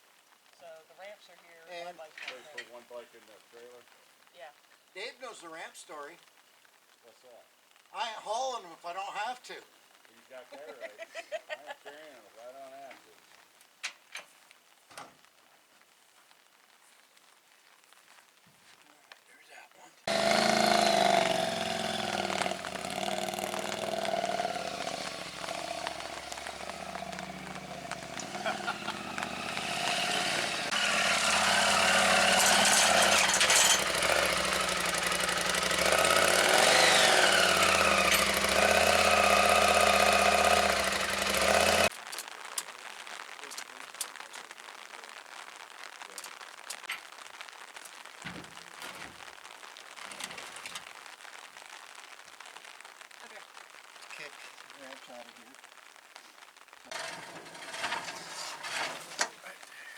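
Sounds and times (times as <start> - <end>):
rain falling: 0.0 - 59.9
engine idling: 20.1 - 41.9, 56.9 - 59.3.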